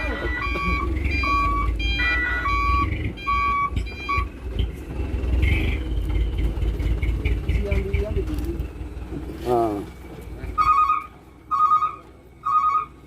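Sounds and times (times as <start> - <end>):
two-tone reversing beep: 0.0 - 4.4
diesel truck engine rumbling: 0.0 - 13.0.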